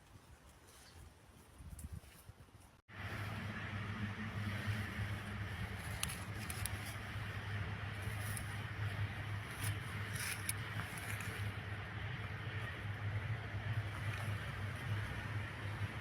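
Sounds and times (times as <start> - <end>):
wind rumble on microphone: 0.0 - 16.0
short scrapes and crackles: 4.2 - 11.9.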